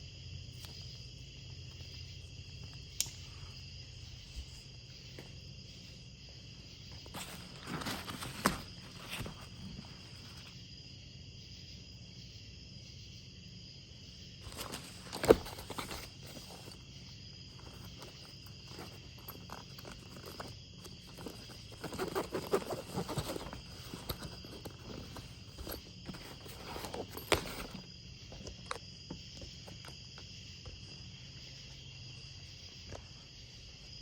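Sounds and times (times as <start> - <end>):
rustling handling sounds: 3.7 - 10.7, 14.4 - 31.1.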